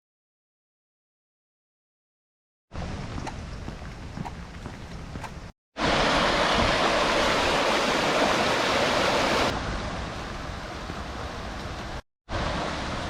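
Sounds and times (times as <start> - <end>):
water rushing: 5.8 - 13.0.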